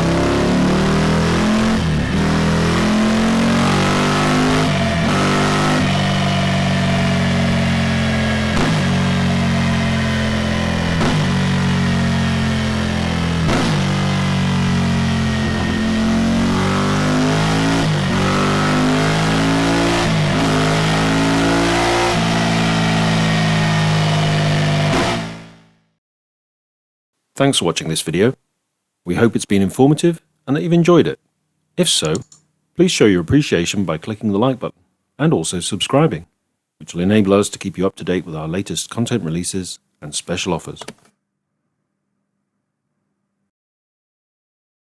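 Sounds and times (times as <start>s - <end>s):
motorcycle engine running loud: 0.0s - 25.6s.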